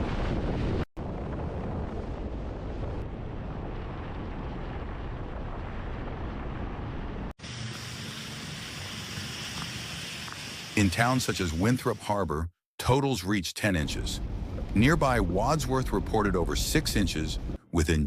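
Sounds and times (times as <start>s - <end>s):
outdoor background noise: 1.5s - 12.2s.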